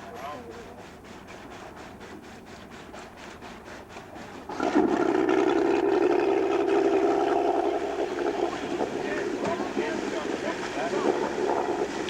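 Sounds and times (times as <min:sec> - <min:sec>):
faint pulsing noise: 0:05.6 - 0:12.0.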